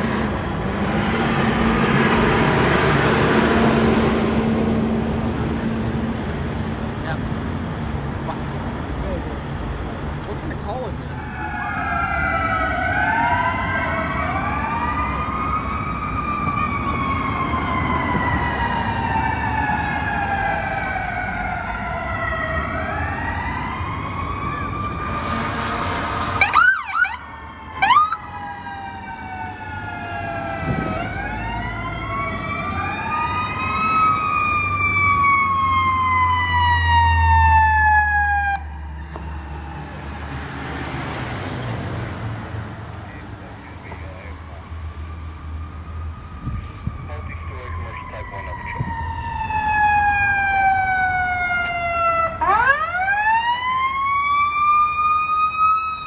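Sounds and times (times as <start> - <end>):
sirens wailing: 0.0 - 56.0
siren chirps: 11.1 - 40.3, 43.1 - 56.0.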